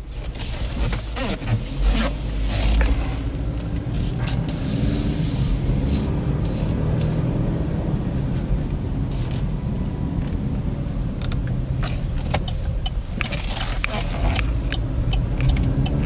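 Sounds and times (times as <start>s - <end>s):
car engine and road rumble: 0.0s - 16.0s
light clicks and ticks: 11.2s - 16.0s.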